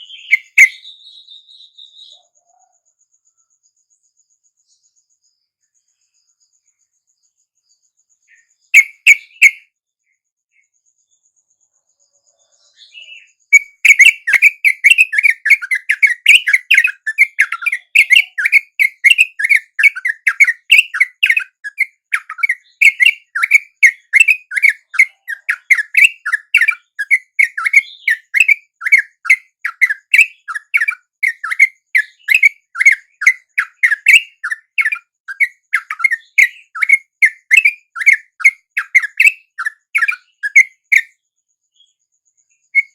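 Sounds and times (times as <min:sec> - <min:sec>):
bulbul chirping: 0:00.0 - 0:02.1, 0:08.7 - 0:09.6, 0:13.1 - 0:41.1.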